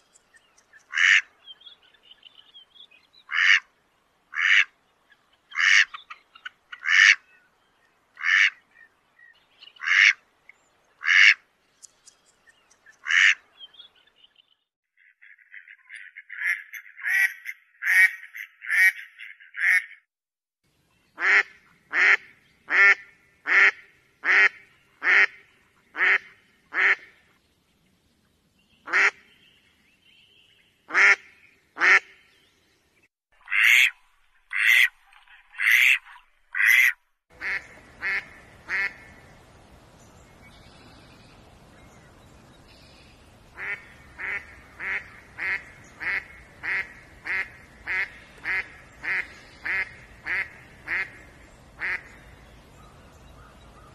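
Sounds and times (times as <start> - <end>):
duck quacking: 3.3 - 3.6, 21.2 - 25.4, 26.0 - 27.1, 33.5 - 34.9, 36.6 - 39.1, 43.6 - 51.2, 51.8 - 52.1
faint steady hiss: 37.3 - 53.9.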